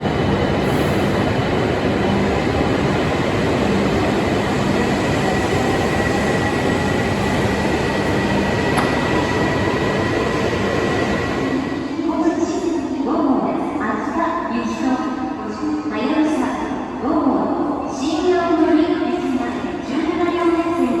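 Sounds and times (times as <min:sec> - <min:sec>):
train running rumble: 0:00.0 - 0:11.6.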